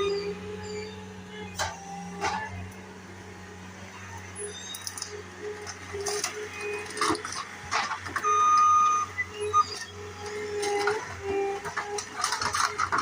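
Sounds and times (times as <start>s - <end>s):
skid steer engine humming: 0.0s - 13.0s
demolition creaks and clicks: 10.6s - 13.0s.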